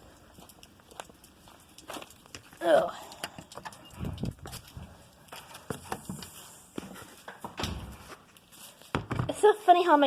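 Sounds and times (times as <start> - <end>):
footsteps on muddy ground: 0.0 - 10.0.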